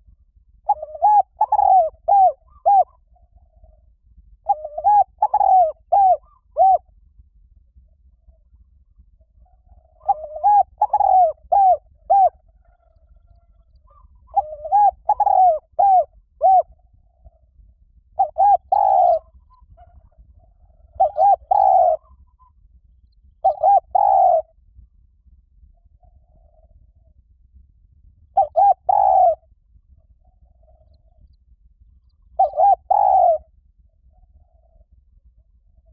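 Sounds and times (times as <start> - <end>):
dove cooing: 0.6 - 6.9, 9.4 - 17.4, 18.1 - 22.5, 23.4 - 24.6, 28.3 - 29.5, 32.2 - 33.5.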